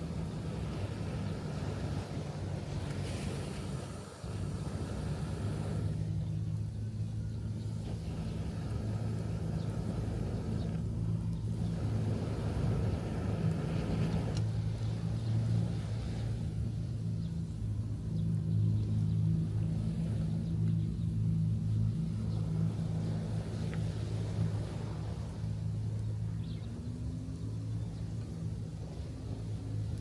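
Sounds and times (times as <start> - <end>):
surf: 0.0 - 17.0
low engine drone: 0.0 - 30.0
wind: 0.0 - 30.0.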